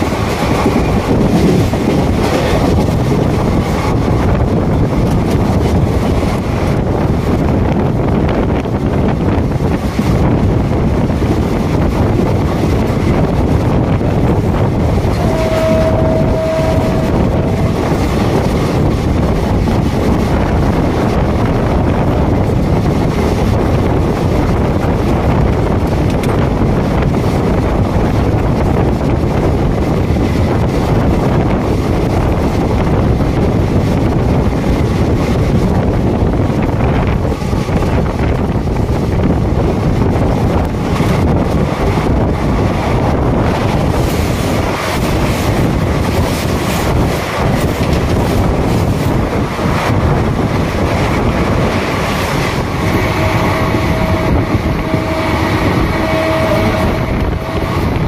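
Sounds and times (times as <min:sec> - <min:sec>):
train rumble: 0:00.0 - 0:58.0
wind buffeting microphone: 0:00.0 - 0:58.0
steady tone: 0:15.0 - 0:19.4, 0:50.8 - 0:58.0.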